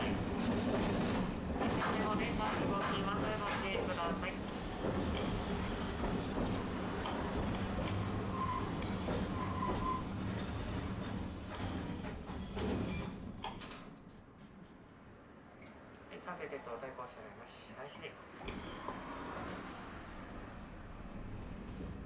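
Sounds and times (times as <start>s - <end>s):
tram rumbling on rails: 0.0s - 15.1s, 18.2s - 22.0s
tram wheel squeals: 4.5s - 13.7s, 18.4s - 19.7s.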